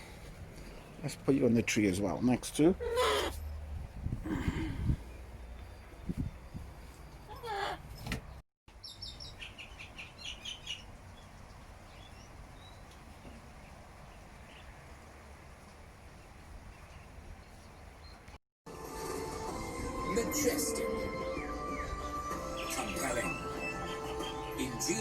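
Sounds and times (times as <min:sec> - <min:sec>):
faint outdoor background: 0:00.0 - 0:25.0
small bird chirping: 0:08.8 - 0:13.0.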